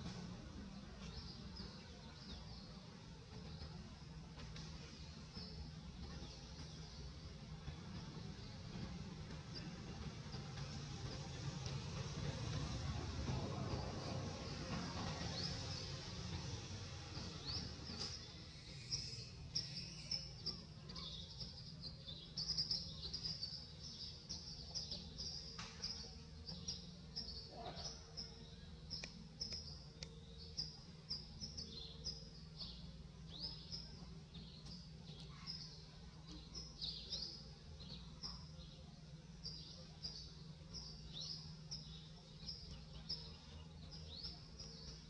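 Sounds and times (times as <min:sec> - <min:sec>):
small birds chirping: 0:13.2 - 0:45.0.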